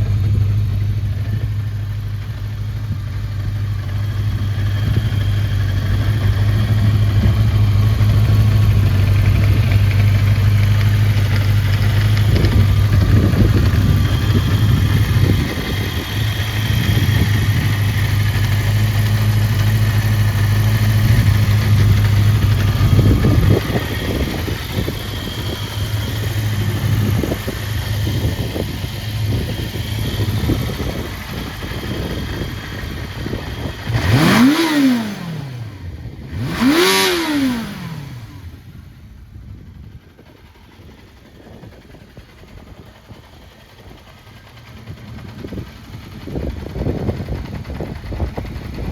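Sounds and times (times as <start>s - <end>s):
engine revving: 0.0s - 38.6s
motorcycle engine idling: 0.0s - 48.9s.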